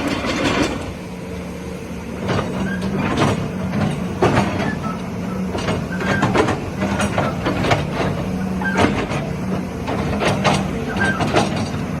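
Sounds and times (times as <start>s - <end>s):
excavator diesel engine running: 0.0s - 12.0s
machine squeaks: 2.6s - 3.0s, 4.5s - 7.5s, 8.4s - 9.1s, 10.9s - 11.5s
metallic clanks and knocks: 5.5s - 11.9s.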